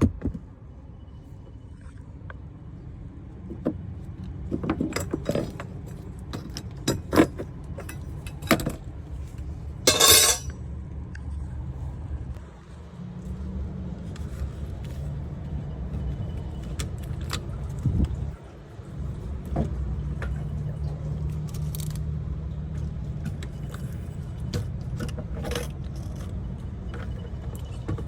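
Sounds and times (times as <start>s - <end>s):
low steady rumble: 0.0s - 28.0s
metal parts rattling: 9.9s - 10.5s
metal tools clinking: 9.9s - 10.6s.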